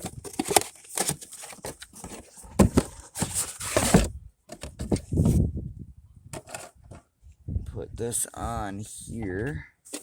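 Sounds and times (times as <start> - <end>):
packaging rustling: 0.0 - 4.1.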